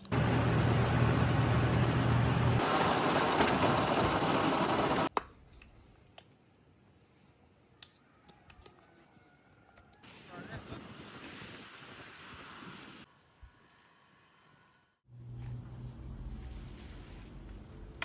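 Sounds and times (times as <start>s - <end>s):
motor humming: 0.0s - 5.1s.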